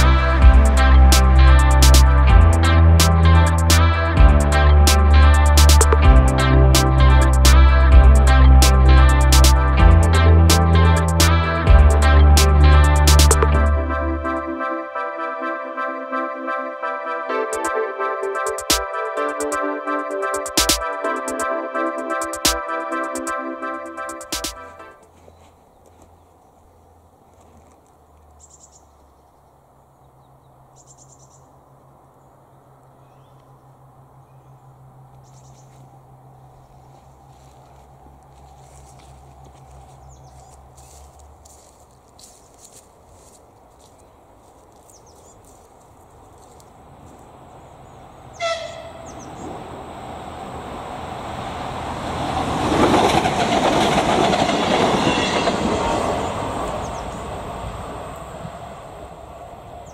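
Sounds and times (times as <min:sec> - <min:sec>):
diesel railcar engine rumble: 0:00.0 - 0:13.5, 0:46.3 - 0:59.9
train horn blast: 0:00.0 - 0:25.1, 0:48.3 - 0:49.5, 0:52.6 - 0:57.2
songbird trills: 0:28.4 - 0:37.1, 0:39.7 - 0:41.2, 0:43.9 - 0:45.5, 0:47.6 - 0:49.6.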